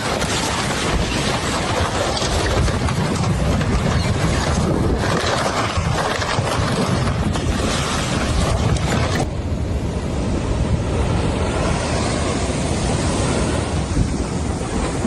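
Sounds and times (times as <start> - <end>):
wind buffeting the microphone: 0.0 - 15.0
sea waves crashing: 4.4 - 15.0.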